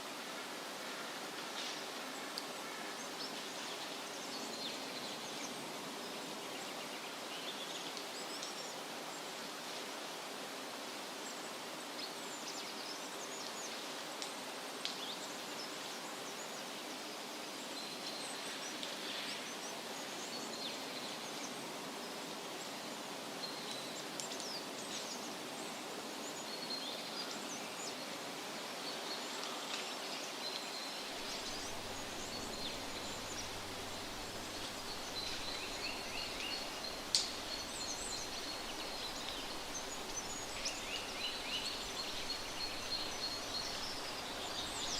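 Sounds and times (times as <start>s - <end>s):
wind rustling leaves: 0.0s - 44.9s
small birds chirping: 26.2s - 44.9s.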